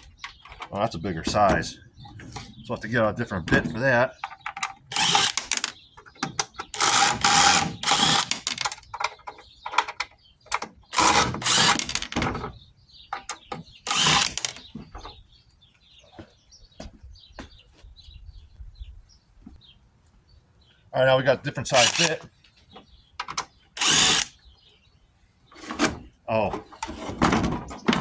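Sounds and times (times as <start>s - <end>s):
drill bits clattering: 4.5s - 9.0s, 10.9s - 12.3s, 13.8s - 14.7s, 21.8s - 22.2s, 23.8s - 24.3s
drill chuck ratcheting clicks: 4.9s - 5.8s, 6.4s - 8.9s, 10.9s - 12.1s, 13.9s - 14.6s, 21.8s - 22.2s, 23.8s - 24.3s.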